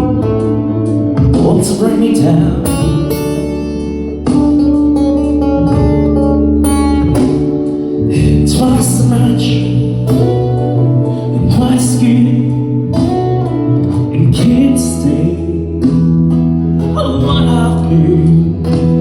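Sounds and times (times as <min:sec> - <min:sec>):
guitar playing: 0:00.0 - 0:19.0
person singing long notes: 0:01.2 - 0:04.2, 0:07.9 - 0:13.2, 0:16.9 - 0:19.0.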